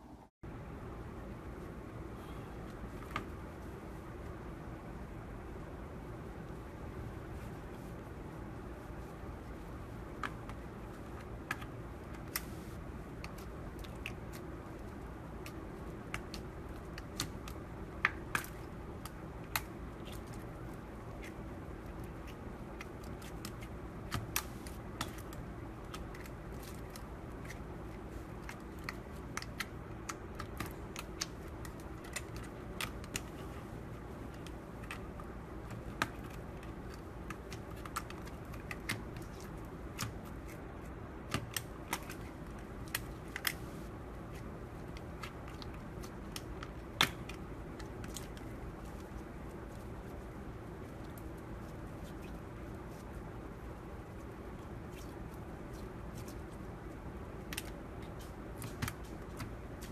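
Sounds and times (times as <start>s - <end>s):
low background hum: 0.0s - 59.9s
slime squishing with clicks and pops: 13.2s - 33.5s, 34.2s - 43.6s.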